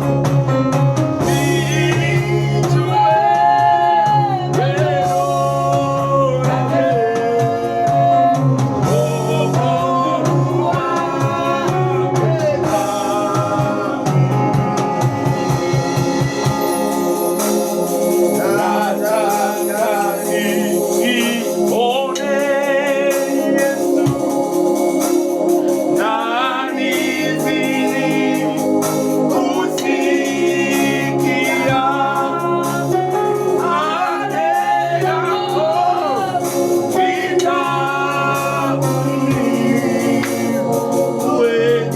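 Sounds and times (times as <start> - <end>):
bass: 0.0 - 18.7, 27.4 - 41.9
organ-like keyboard: 0.0 - 41.9
gospel singing: 1.0 - 41.9.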